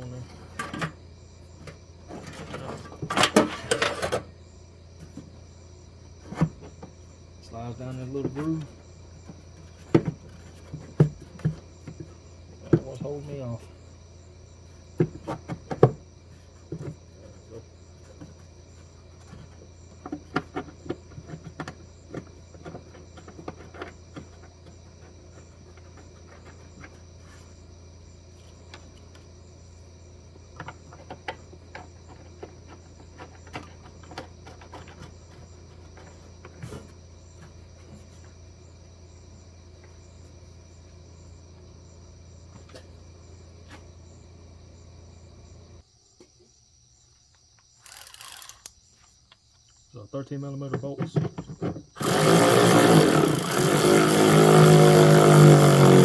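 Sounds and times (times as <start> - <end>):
crickets chirping: 0.0 - 56.0
metal tools clinking and clanking: 2.3 - 4.2.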